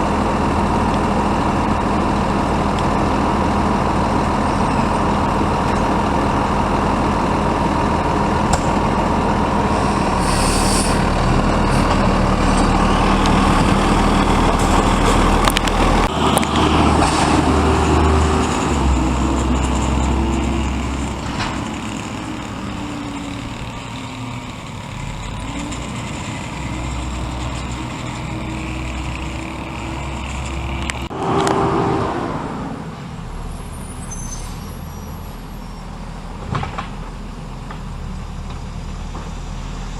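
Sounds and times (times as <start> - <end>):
garbage truck diesel engine: 0.0 - 39.9
burst of noise: 9.7 - 23.8.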